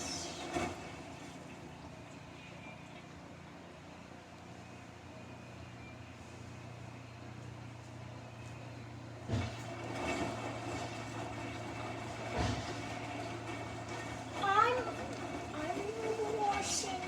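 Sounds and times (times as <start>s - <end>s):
washing machine motor hum: 9.3s - 17.0s.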